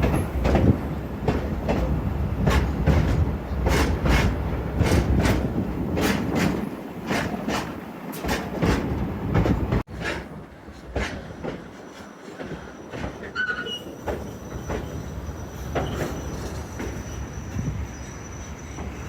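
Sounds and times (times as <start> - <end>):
train wheels rolling on track: 0.0 - 19.0
high-pitched wheel squeal: 11.9 - 19.0.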